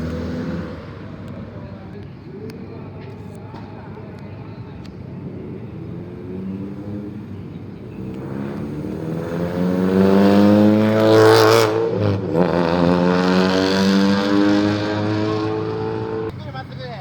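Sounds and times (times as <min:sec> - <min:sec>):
car driving past: 0:00.0 - 0:01.8, 0:05.7 - 0:16.3.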